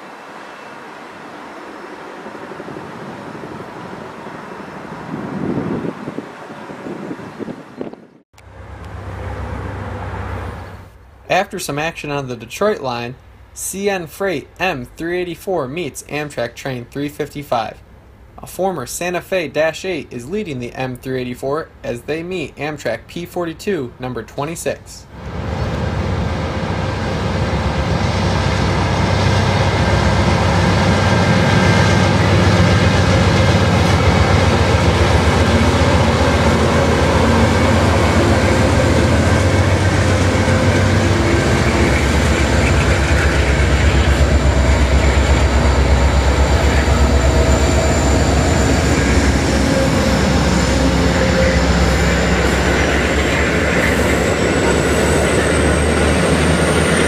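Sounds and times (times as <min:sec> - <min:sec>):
passenger train passing: 0:00.0 - 0:22.8, 0:25.0 - 0:57.0
freight train passing: 0:00.0 - 0:23.7, 0:25.1 - 0:57.0
thin high whine: 0:31.2 - 0:56.1.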